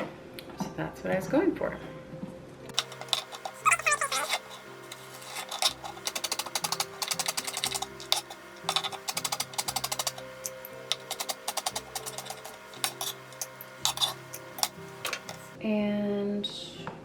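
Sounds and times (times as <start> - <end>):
background music: 2.7 - 15.6.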